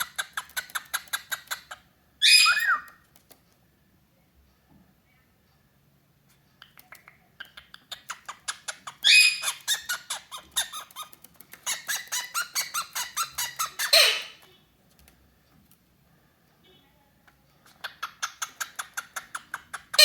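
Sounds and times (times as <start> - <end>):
cockatiel chattering: 0.0 - 2.9, 6.6 - 14.4, 17.7 - 20.0
cockatiel squawk: 2.2 - 2.9, 11.7 - 14.4.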